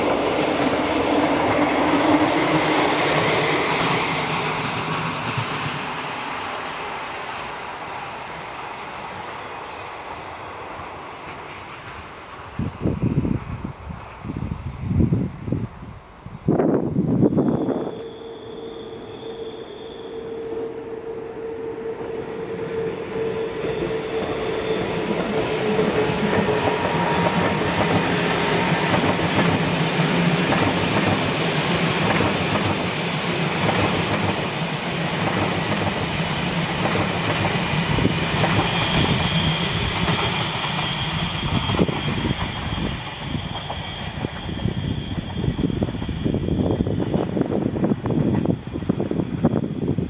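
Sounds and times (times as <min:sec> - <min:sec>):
train wheels rumbling and clattering: 0:00.0 - 0:15.6, 0:22.0 - 0:50.0
high wheel squeal: 0:17.2 - 0:49.0.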